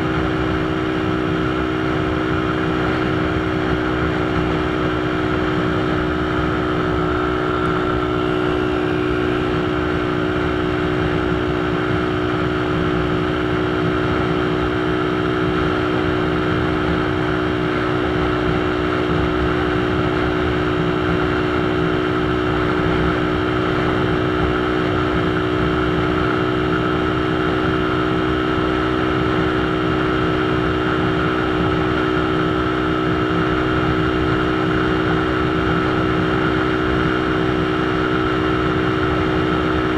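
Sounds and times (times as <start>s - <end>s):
constant rushing noise: 0.0s - 39.9s.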